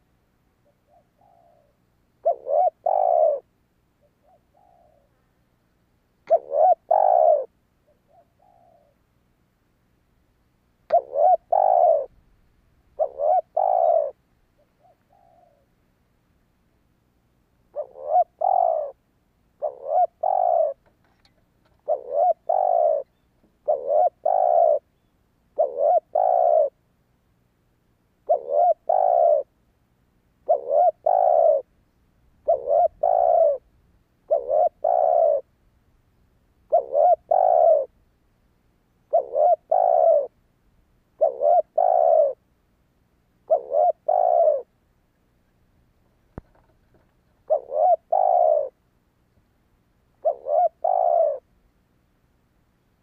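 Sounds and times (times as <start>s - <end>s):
dove cooing: 0.6s - 5.3s, 6.2s - 9.0s, 10.9s - 12.2s, 13.0s - 15.7s, 17.7s - 19.0s, 19.6s - 20.9s, 21.7s - 26.8s, 28.2s - 29.5s, 30.4s - 31.7s, 32.4s - 35.5s, 36.7s - 38.0s, 39.0s - 40.4s, 41.1s - 42.4s, 43.4s - 44.7s, 46.4s - 48.8s, 50.2s - 51.5s.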